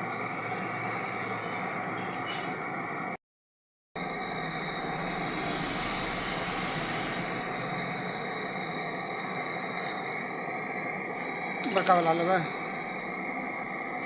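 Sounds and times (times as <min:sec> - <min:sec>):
small electric motor whirring: 0:04.1 - 0:14.0.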